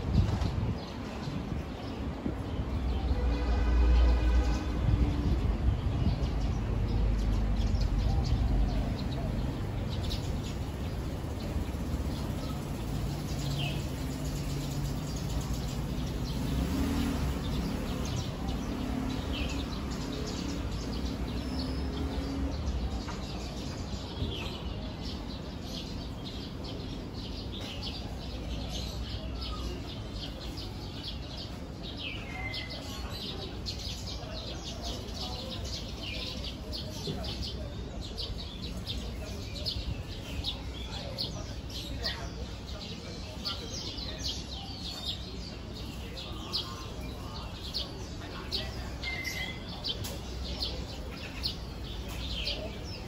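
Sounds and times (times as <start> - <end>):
songbirds chirping: 0.0 - 53.0.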